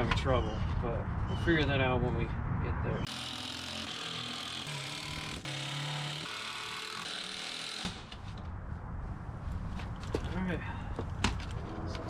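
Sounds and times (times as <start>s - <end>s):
power drill driving screws: 3.1s - 8.2s.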